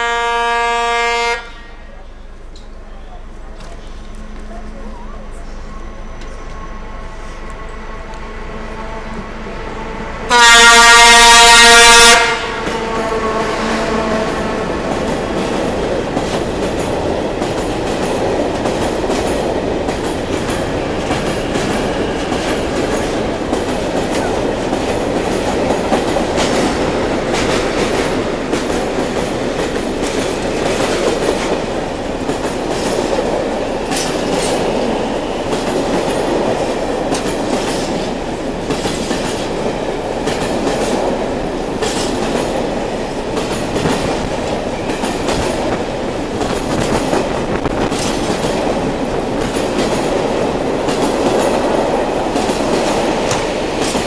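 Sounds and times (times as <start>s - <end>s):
locomotive horn blast: 0.0s - 1.8s, 5.7s - 14.9s
freight train rolling past: 0.0s - 54.0s.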